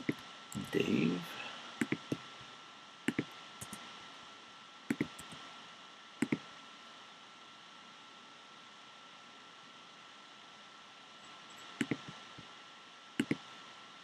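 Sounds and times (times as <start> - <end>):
thin high hum: 0.0 - 6.6
faint steady hiss: 0.0 - 14.0
computer mouse double clicks: 4.9 - 5.4.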